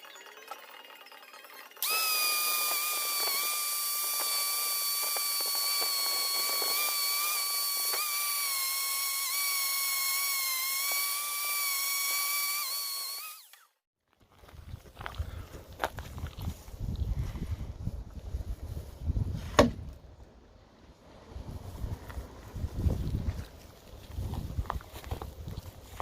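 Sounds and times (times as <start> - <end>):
power tool motor whining: 0.9 - 13.8
loud hiss: 1.8 - 9.5.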